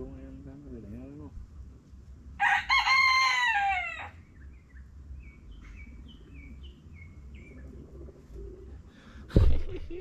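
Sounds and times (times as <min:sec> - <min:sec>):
small bird chirping: 0:04.1 - 0:08.8.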